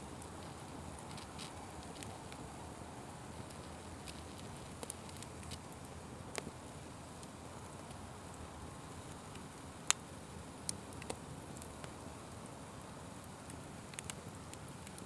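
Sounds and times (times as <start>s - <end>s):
fire crackles and pops: 0.0s - 15.0s
fire hissing: 0.0s - 15.0s.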